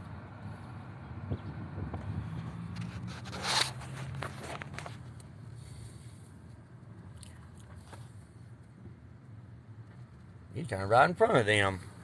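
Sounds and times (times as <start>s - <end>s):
vehicle engine humming: 0.0s - 12.0s
loud scraping rustle: 2.7s - 5.1s.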